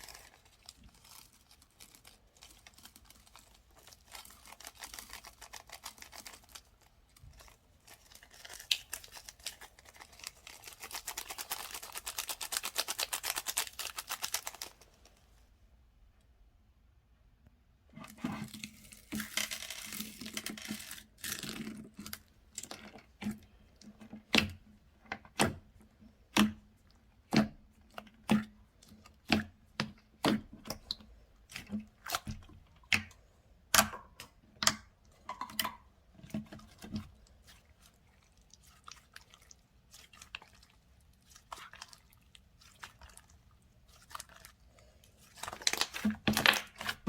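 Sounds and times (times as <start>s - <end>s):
slime crackling and popping: 45.3s - 47.0s.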